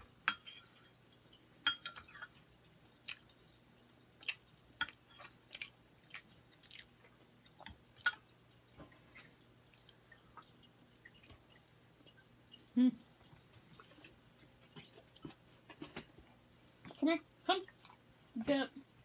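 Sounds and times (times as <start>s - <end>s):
person chewing bread: 2.8s - 17.0s.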